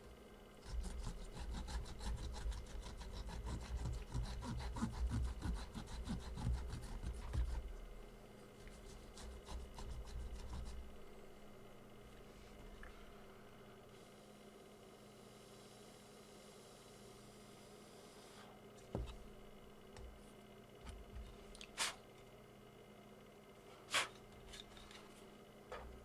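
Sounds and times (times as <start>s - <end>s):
stiff brush scrubbing circuit board: 0.6s - 7.7s, 8.7s - 10.8s.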